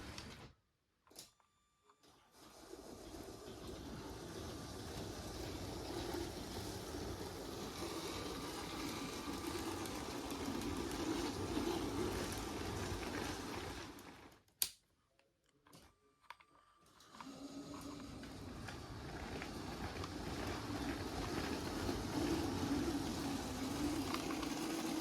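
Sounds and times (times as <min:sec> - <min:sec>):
toy train rattling on track: 0:02.3 - 0:14.2, 0:17.1 - 0:25.0.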